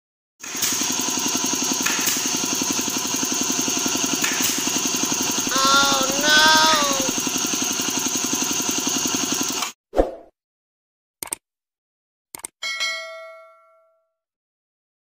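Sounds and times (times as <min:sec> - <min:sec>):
air compressor running: 0:00.4 - 0:09.8
short pitch-bending voice-like sounds: 0:05.5 - 0:07.2.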